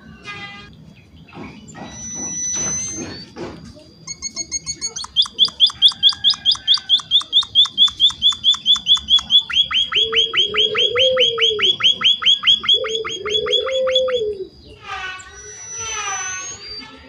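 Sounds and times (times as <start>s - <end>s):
finch chirping rapidly: 1.7s - 3.2s, 4.1s - 14.3s, 15.1s - 16.9s
low wavering coo-like tone: 9.6s - 14.6s.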